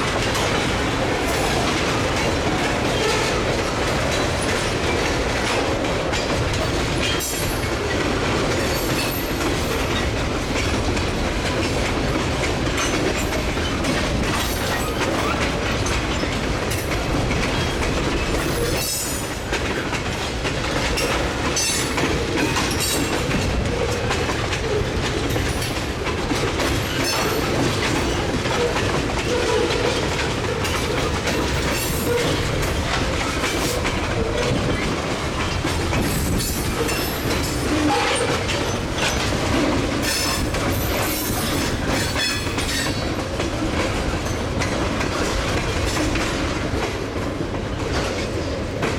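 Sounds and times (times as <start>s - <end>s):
freight train wheels clacking: 0.0s - 48.9s.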